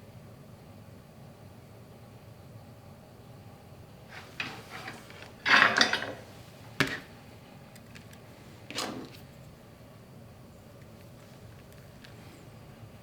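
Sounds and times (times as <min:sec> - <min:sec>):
short scrape: 0:04.1 - 0:07.1
tools rattling clatter: 0:04.1 - 0:07.1.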